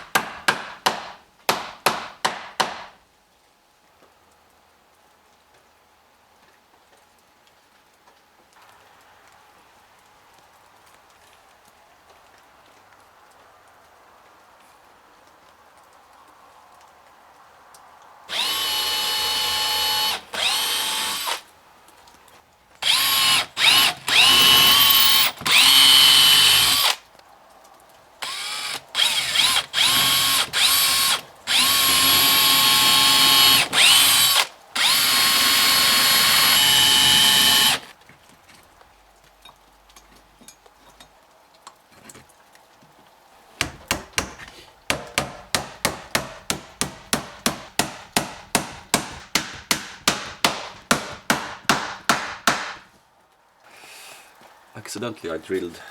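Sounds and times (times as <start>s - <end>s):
electric drill boring into wood: 18.3s - 21.4s, 22.8s - 27.0s, 28.2s - 37.9s.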